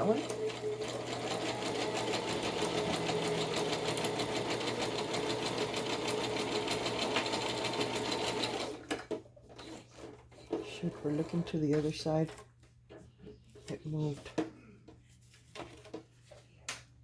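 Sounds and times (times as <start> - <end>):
electric sewing machine stitching: 0.0 - 8.9.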